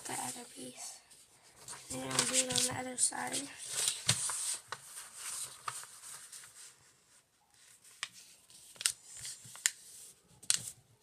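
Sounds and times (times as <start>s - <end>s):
paper rustling: 1.4s - 10.8s
paper crackles: 1.6s - 6.8s, 7.6s - 10.8s.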